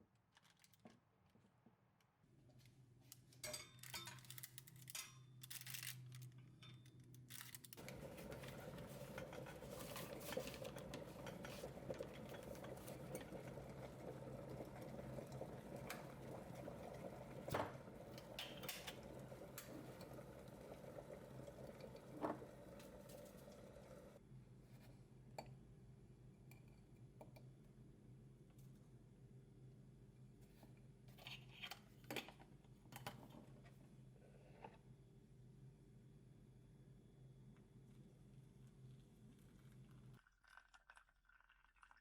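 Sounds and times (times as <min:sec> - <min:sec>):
dishes and utensils clinking: 0:03.4 - 0:05.2, 0:07.8 - 0:14.1.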